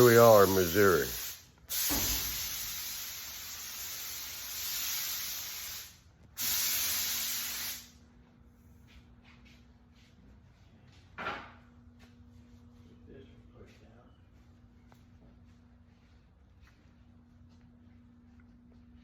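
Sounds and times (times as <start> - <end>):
hissing spray blasts: 0.0 - 7.9.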